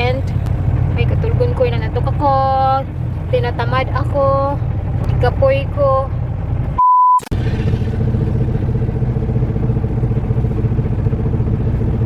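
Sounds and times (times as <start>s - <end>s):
truck engine drone inside cab: 0.0s - 12.0s
censor bleep: 6.8s - 7.3s.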